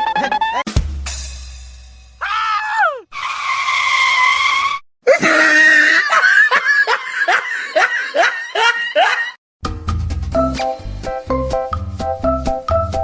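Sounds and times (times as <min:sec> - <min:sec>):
high-pitched voice crying out: 0:02.2 - 0:03.1.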